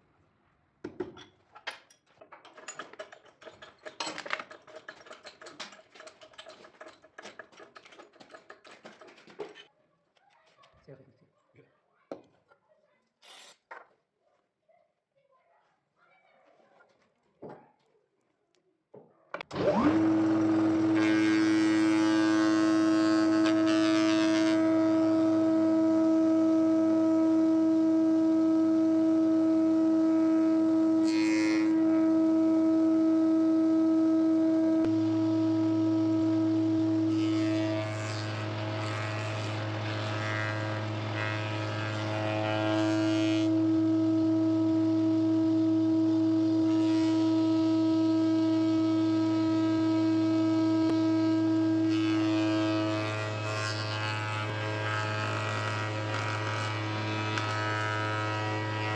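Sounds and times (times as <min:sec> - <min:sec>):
power tool motor humming: 0:19.5 - 0:58.9.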